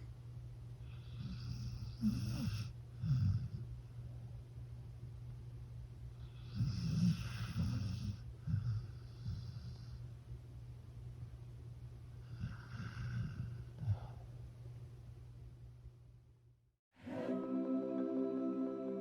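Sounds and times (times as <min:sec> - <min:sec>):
dog snoring: 0:00.8 - 0:03.7, 0:06.2 - 0:10.0, 0:12.2 - 0:14.2.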